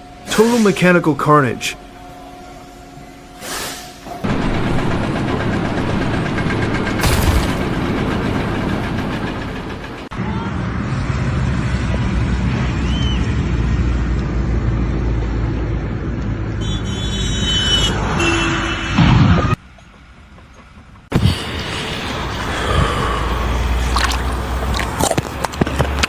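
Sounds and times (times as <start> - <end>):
heavy vehicle engine rumbling: 4.2 - 16.6, 19.3 - 26.0
loud burst: 6.9 - 8.2.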